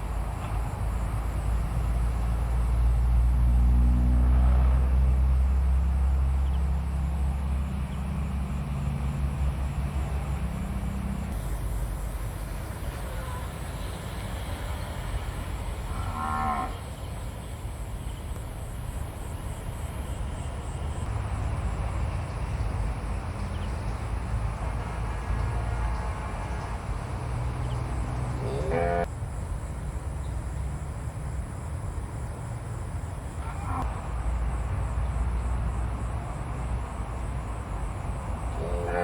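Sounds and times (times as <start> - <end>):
animal calling: 28.4 - 29.1, 38.6 - 39.0.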